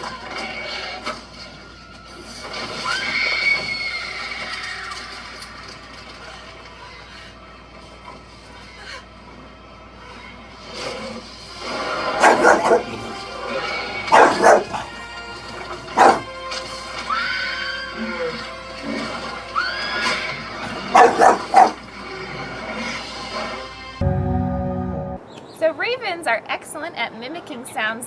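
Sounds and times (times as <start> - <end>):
dog barking: 12.0 - 16.3, 20.6 - 21.8.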